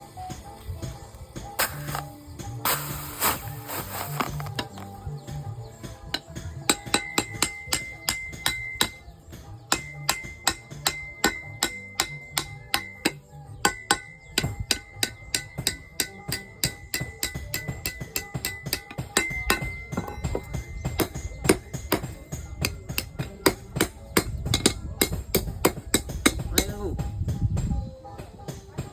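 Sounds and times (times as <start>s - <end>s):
hammer striking metal on anvil: 6.1s - 26.8s.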